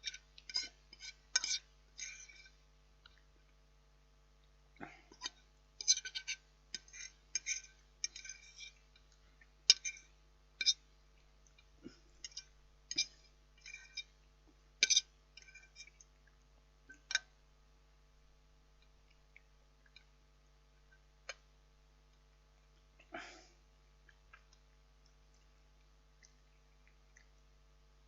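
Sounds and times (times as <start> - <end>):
cutlery scraping a meal tray: 0.0 - 2.6, 5.2 - 8.8, 12.2 - 14.1.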